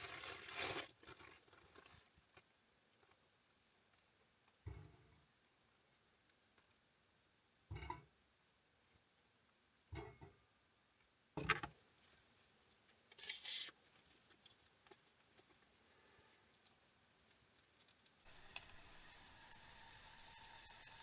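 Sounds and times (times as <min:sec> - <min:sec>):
sizzling hiss with crackles: 0:18.2 - 0:21.0.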